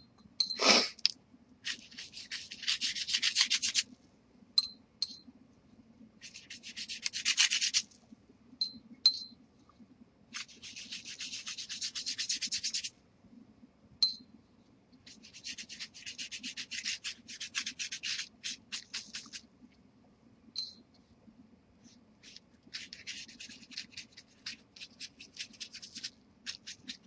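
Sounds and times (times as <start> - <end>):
oil pastel scratching on paper: 1.6 - 3.9, 6.2 - 7.9, 10.4 - 12.9, 15.1 - 19.4, 21.8 - 27.0.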